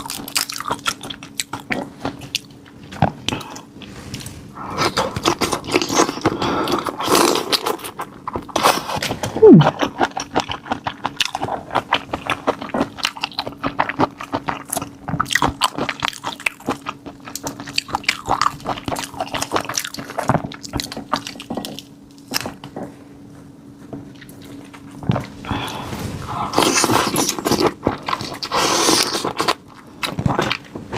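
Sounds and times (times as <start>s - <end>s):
wet chewing and smacking: 0.0s - 22.9s, 23.8s - 25.5s, 26.5s - 30.9s
steady low hum: 0.0s - 30.9s.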